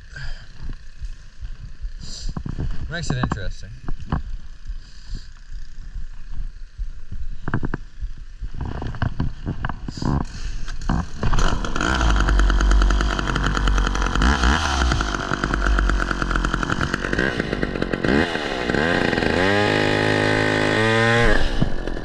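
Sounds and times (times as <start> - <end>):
chainsaw cutting wood: 10.0 - 22.0.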